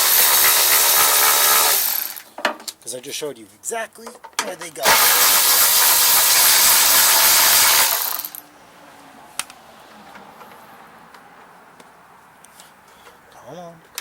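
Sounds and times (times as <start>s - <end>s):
cordless ratchet running: 0.0s - 2.2s, 4.8s - 8.4s.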